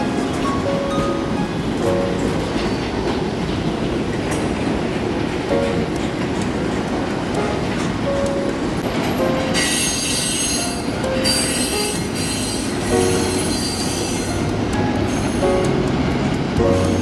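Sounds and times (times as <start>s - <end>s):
freight train wheels rumbling: 0.0s - 17.0s
high-pitched wheel squeal: 9.6s - 14.4s.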